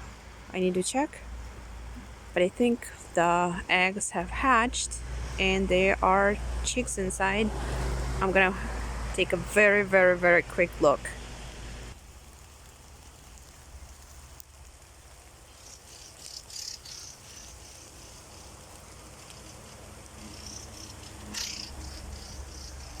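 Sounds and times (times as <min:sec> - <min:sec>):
low steady rumble: 0:00.0 - 0:15.6
faint bird calls: 0:15.4 - 0:23.0.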